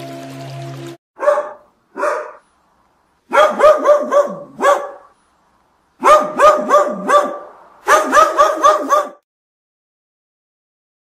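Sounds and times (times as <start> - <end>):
puppies yapping: 1.2 - 2.4, 3.3 - 5.1, 6.0 - 9.2.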